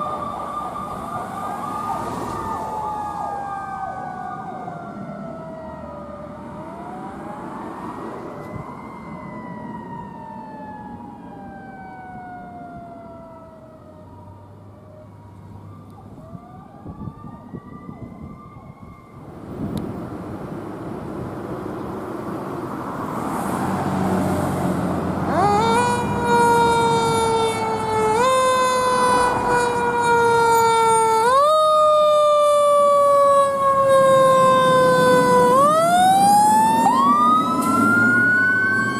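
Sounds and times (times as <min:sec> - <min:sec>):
fire truck siren wailing: 0:00.0 - 0:21.0, 0:22.6 - 0:38.9.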